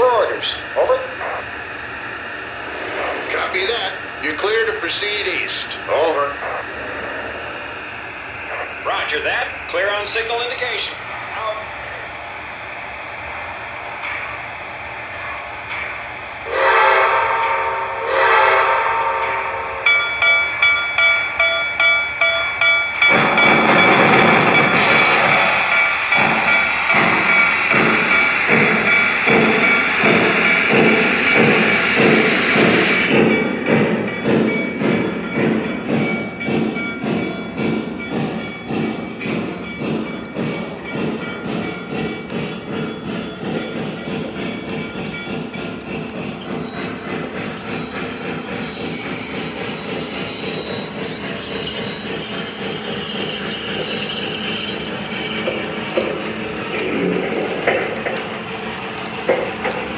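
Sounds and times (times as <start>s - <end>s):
model steam locomotive chuffing: 0.0s - 22.0s, 23.0s - 59.9s
train whistle blasts: 16.4s - 19.9s
wheels clattering on rails: 19.9s - 59.9s
model locomotive hiss: 24.4s - 33.3s, 41.5s - 59.9s.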